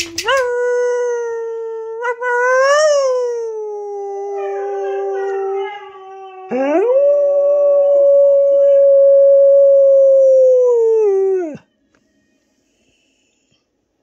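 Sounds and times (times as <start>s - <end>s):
dogs howling: 2.5s - 11.6s.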